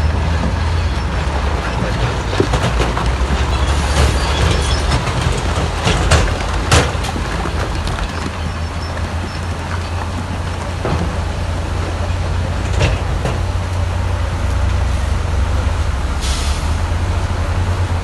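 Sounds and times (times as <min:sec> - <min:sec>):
diesel machinery engine drone: 0:00.0 - 0:18.0
sharp knocks: 0:02.1 - 0:11.5.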